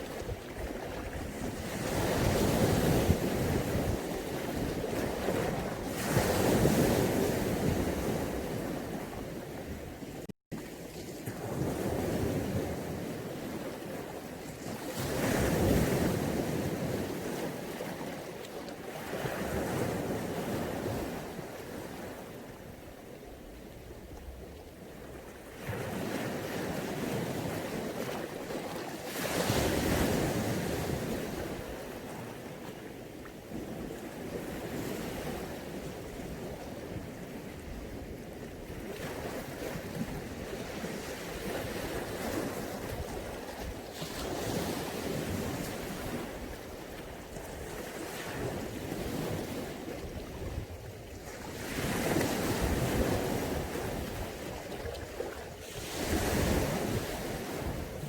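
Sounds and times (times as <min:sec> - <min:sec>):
waves washing in as surf: 0:00.0 - 0:10.0, 0:25.4 - 0:58.0.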